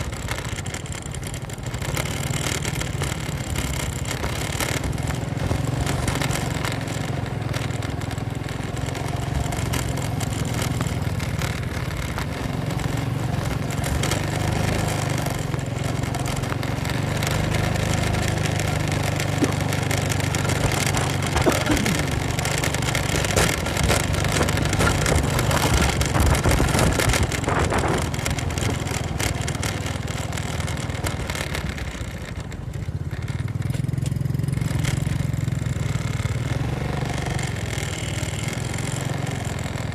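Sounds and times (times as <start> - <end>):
motorcycle engine running: 0.0 - 39.9
knocks and rattles: 13.4 - 33.7.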